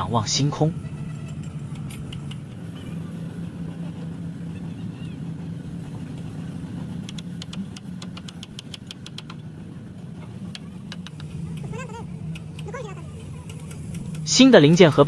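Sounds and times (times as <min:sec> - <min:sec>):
low engine-like drone: 0:00.0 - 0:15.0
rapid sharp clicks: 0:01.3 - 0:02.7, 0:07.0 - 0:09.5, 0:10.5 - 0:15.0.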